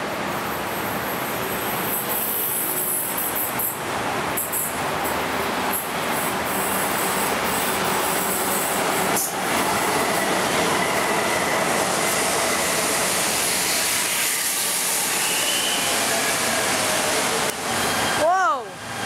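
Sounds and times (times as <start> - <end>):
train wheel and rail noise: 0.0 - 19.0
high-pitched wheel squeal: 14.3 - 16.6.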